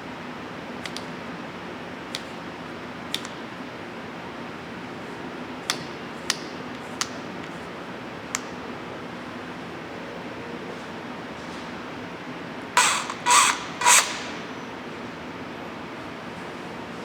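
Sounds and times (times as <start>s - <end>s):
sharp clicks: 12.8s - 14.6s.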